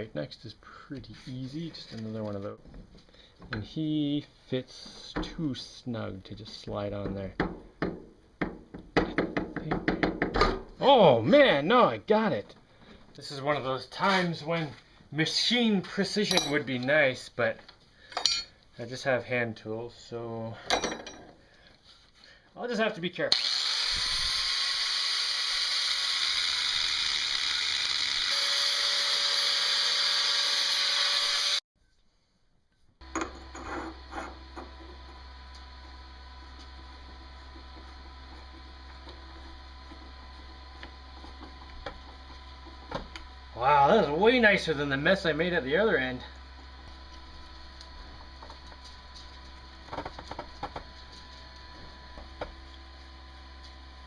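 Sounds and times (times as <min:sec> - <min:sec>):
small power tool whirring on metal: 0:23.3 - 0:31.6, 0:33.0 - 0:54.0
low electrical hum: 0:33.0 - 0:54.0.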